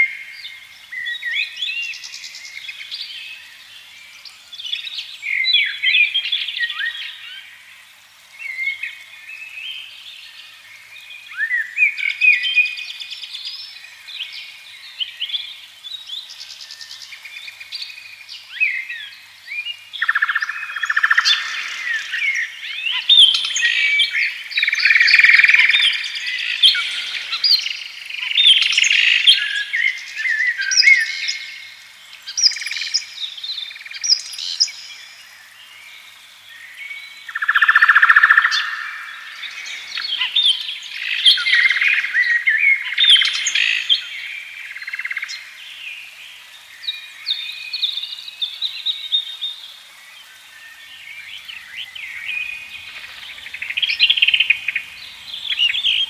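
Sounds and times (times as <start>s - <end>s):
birds singing and chirping: 19.7s - 35.2s, 36.5s - 45.8s, 50.3s - 56.0s.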